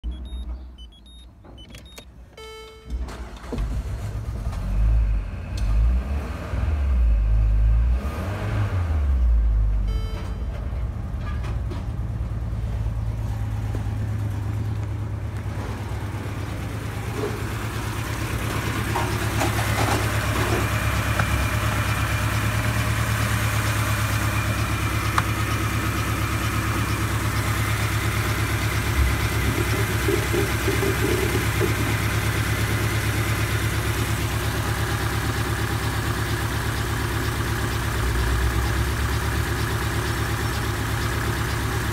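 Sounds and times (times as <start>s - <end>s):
short electronic beeps: 0.0s - 3.0s, 9.8s - 10.7s
car engine starting and idling: 0.0s - 41.9s.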